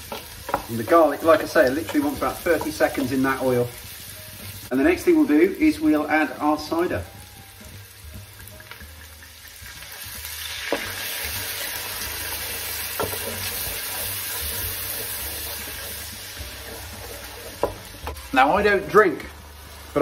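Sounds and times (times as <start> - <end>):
onions frying in oil: 0.0 - 20.0.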